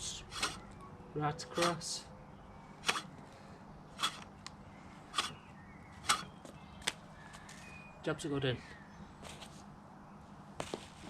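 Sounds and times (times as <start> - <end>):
mower blades snipping paper: 0.3 - 0.7, 1.5 - 1.8, 2.8 - 3.1, 4.0 - 4.3, 5.1 - 5.4, 6.0 - 6.3.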